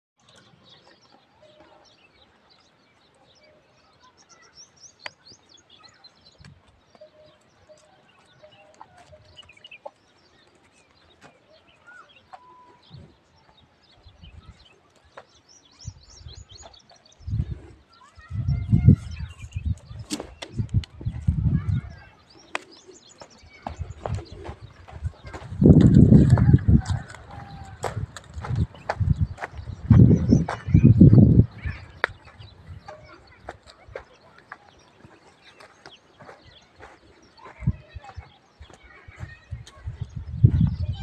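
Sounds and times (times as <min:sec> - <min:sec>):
small birds chirping: 0:00.2 - 0:41.0.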